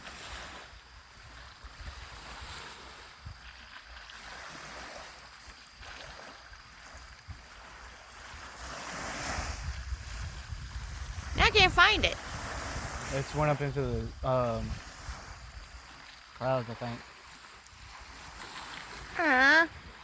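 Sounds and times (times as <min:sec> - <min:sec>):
wind buffeting microphone: 0:01.1 - 0:03.5, 0:07.2 - 0:16.1.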